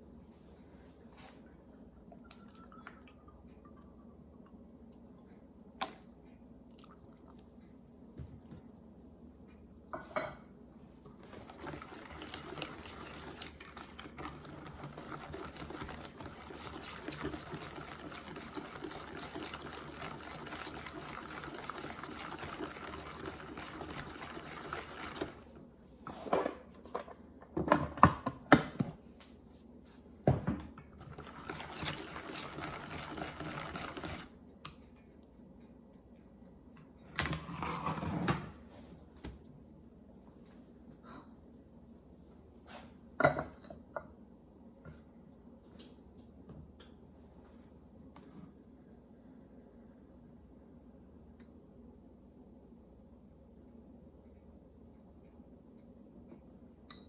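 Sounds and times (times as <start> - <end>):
steady liquid-like noise: 11.1 - 25.6, 31.0 - 34.4.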